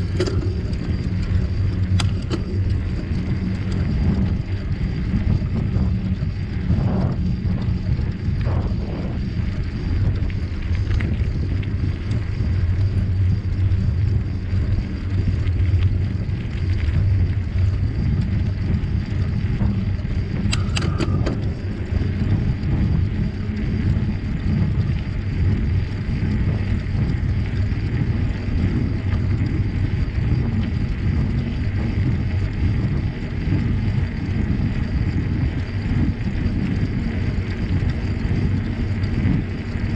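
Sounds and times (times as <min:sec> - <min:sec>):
bicycle tyre noise: 0:00.0 - 0:39.9
wind buffeting microphone: 0:00.0 - 0:39.9
sharp clicks: 0:20.4 - 0:21.5.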